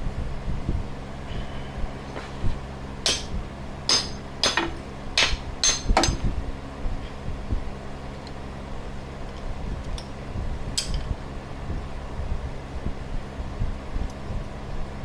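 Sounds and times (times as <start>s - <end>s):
fan hum: 0.0s - 15.0s
metallic hammer strikes: 3.0s - 6.3s.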